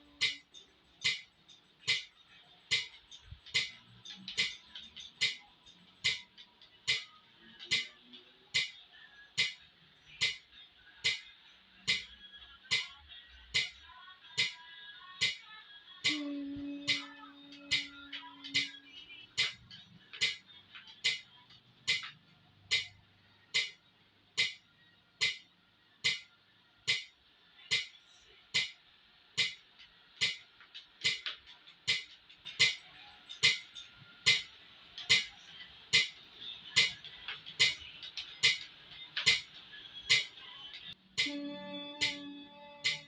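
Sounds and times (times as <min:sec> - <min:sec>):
metronome clicking: 0:00.2 - 0:02.1, 0:16.0 - 0:20.4, 0:21.9 - 0:23.0, 0:23.6 - 0:23.8, 0:24.4 - 0:24.6, 0:25.2 - 0:25.4, 0:41.2 - 0:41.4, 0:42.0 - 0:43.0.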